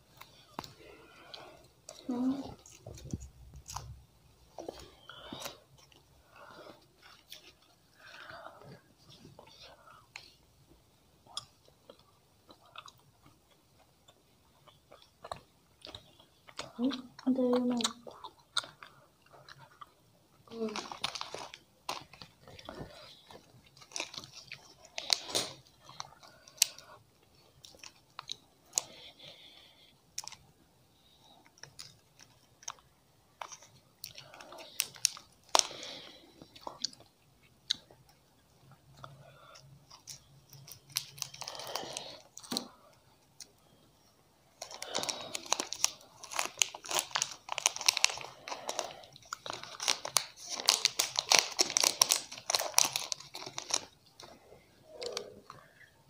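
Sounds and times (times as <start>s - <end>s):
chewing and crunching chocolate: 0.1s - 10.4s, 11.2s - 43.8s, 44.4s - 56.0s
plastic wrapper crinkling: 20.5s - 26.8s, 33.4s - 35.9s, 39.9s - 42.7s, 44.6s - 54.4s.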